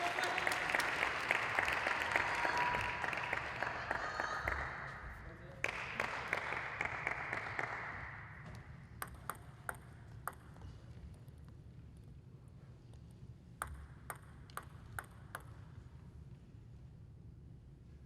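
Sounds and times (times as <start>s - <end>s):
applause: 0.0s - 8.6s
table tennis ball bouncing: 8.4s - 11.1s, 13.6s - 15.8s.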